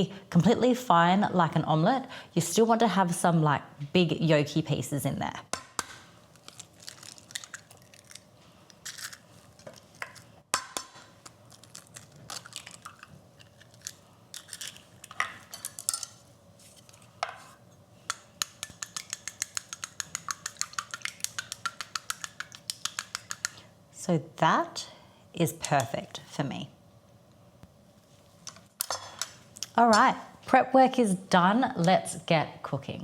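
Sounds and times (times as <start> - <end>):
eggs cracking at a bowl: 5.5 - 16.2, 18.1 - 23.6
whisk clicking against bowl: 18.1 - 23.6.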